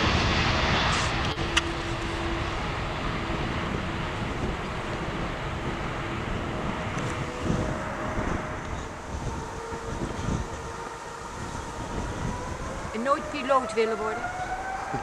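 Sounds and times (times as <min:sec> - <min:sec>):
distant jet engines rumbling: 0:00.0 - 0:15.0
wind buffeting microphone: 0:00.0 - 0:15.0.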